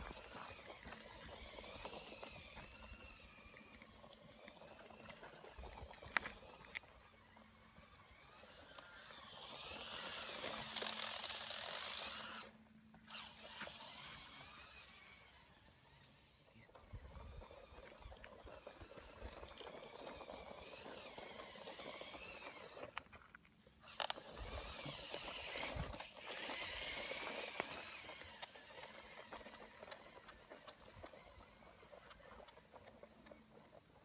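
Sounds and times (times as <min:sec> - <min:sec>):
toy electric motor whining: 0:00.0 - 0:34.0
tyres on gravel and grass: 0:00.0 - 0:34.0.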